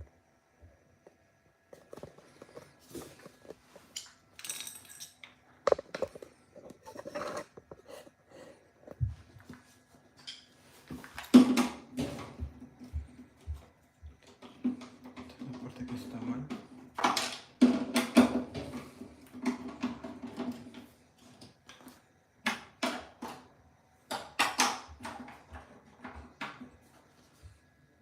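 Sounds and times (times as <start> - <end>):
tools clattering: 3.2 - 6.2.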